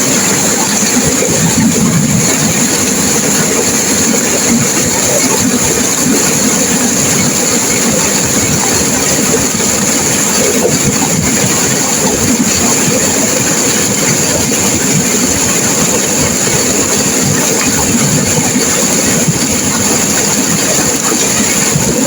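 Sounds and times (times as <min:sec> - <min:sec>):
turbulent river water rushing: 0:00.0 - 0:22.0.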